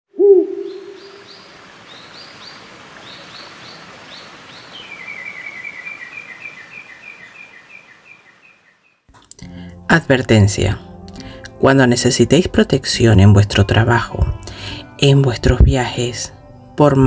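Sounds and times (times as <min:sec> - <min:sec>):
birds chirping and trilling: 0:00.2 - 0:09.1
steady background hiss: 0:00.4 - 0:09.0.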